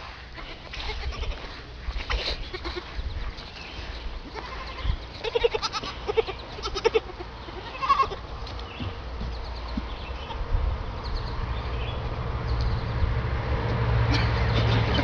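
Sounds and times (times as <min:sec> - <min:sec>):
animal bleating: 0:00.3 - 0:03.0, 0:04.3 - 0:08.2.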